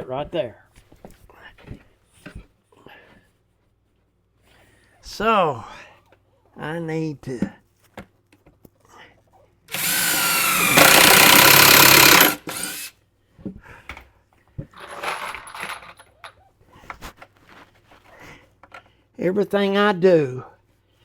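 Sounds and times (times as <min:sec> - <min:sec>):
power drill running: 0:09.7 - 0:12.9
knocks and handling clatter: 0:13.9 - 0:18.0.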